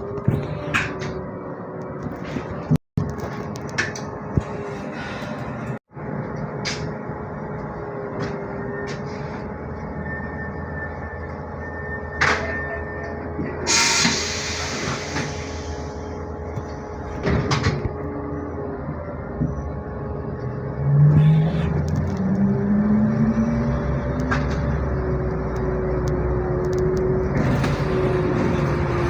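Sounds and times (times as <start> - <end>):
trolleybus running hum: 0.0 - 29.0
air hiss: 13.7 - 16.1.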